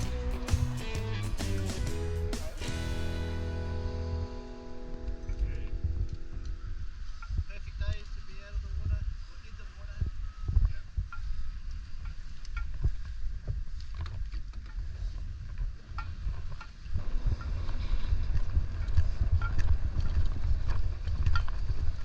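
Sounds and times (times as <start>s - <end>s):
wind buffeting microphone: 5.0s - 22.0s.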